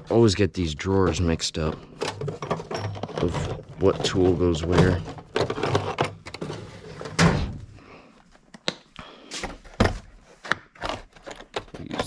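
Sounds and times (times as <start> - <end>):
tool chest drawers opening and shutting: 0.0 - 7.7
tools knocking inside drawers: 1.0 - 7.6.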